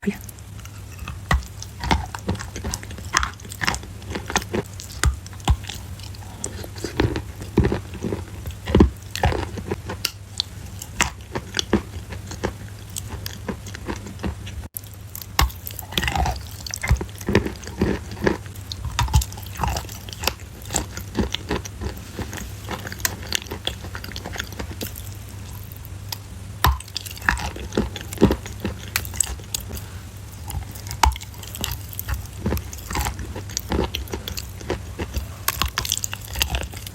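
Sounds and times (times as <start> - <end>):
crunchy food being chewed: 0.1 - 36.9.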